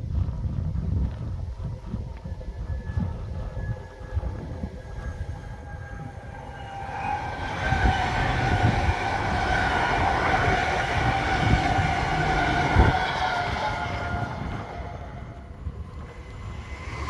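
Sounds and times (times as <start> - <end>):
wind thumps on microphone: 0.0 - 5.4
electric train whine and rumble: 0.0 - 17.0.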